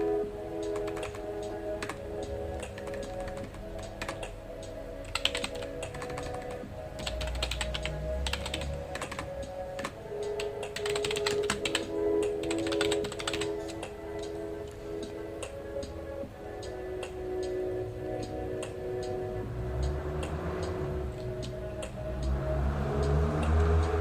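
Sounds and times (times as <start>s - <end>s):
background music with held notes: 0.0s - 24.0s
keyboard typing: 0.6s - 16.0s.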